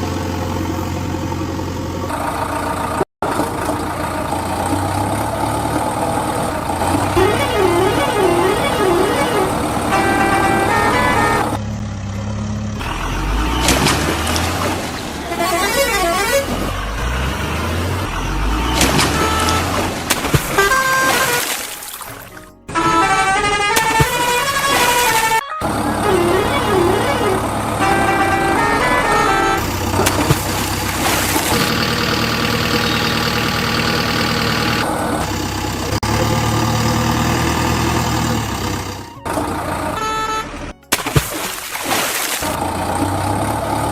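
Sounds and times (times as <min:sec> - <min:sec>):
vehicle engine rumbling: 0:00.0 - 0:43.9
short horn toots: 0:07.1 - 0:11.6, 0:15.2 - 0:17.1, 0:18.6 - 0:30.4, 0:39.8 - 0:41.0.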